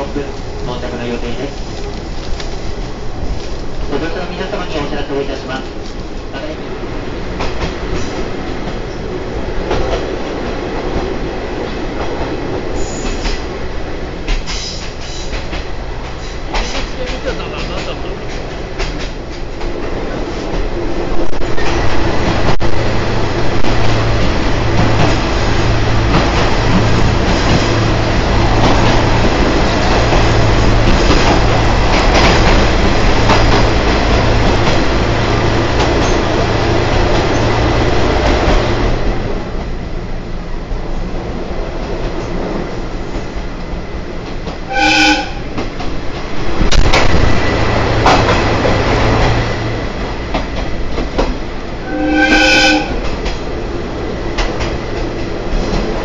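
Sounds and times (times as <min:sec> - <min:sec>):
train wheels on track: 0:00.0 - 0:56.0
train horn blasts: 0:44.7 - 0:45.5, 0:51.8 - 0:53.1.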